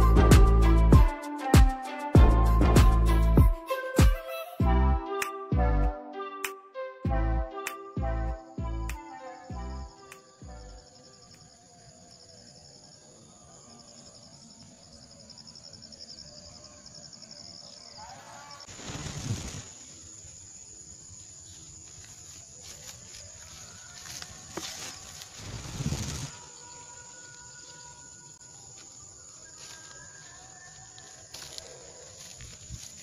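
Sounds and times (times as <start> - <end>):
insects chirping: 8.4 - 33.0
wind gust on microphone: 25.4 - 26.4.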